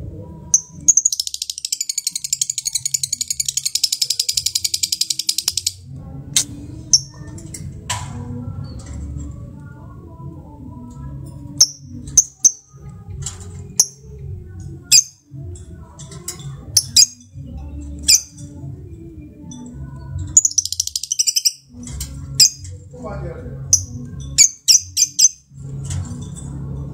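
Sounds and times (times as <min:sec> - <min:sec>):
lovebird chattering: 0:00.6 - 0:05.8, 0:20.4 - 0:21.7, 0:23.7 - 0:25.4
lovebirds chirping: 0:16.7 - 0:18.6, 0:19.5 - 0:21.7, 0:23.6 - 0:25.5.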